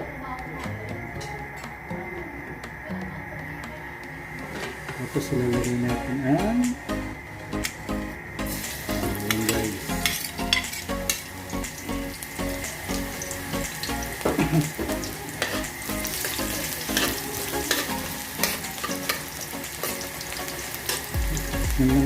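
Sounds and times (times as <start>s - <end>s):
garlic sizzling in oil: 8.4s - 21.6s.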